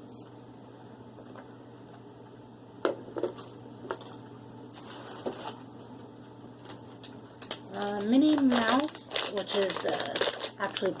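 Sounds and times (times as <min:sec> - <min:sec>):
steady low hum: 0:00.0 - 0:11.0
plastic rustling: 0:03.3 - 0:05.7, 0:06.6 - 0:11.0.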